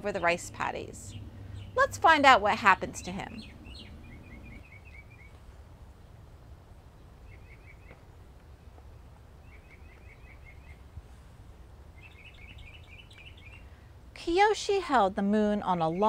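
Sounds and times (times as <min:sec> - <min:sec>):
faint low background rumble: 0:00.0 - 0:16.0
small bird chirping: 0:02.7 - 0:06.2, 0:06.9 - 0:10.9, 0:12.0 - 0:13.8.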